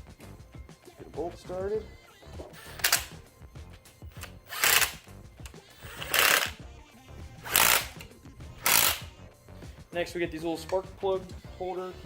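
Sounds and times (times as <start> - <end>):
socket ratchet clicking: 2.6 - 3.2, 3.9 - 6.6, 7.4 - 9.1.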